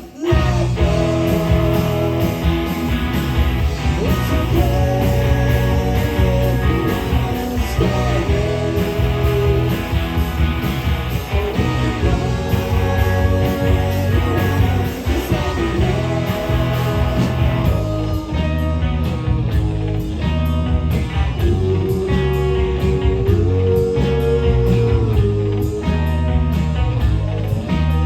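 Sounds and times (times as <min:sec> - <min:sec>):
bass guitar: 0:00.0 - 0:28.0
drums: 0:00.0 - 0:28.0
electric guitars: 0:00.0 - 0:28.0.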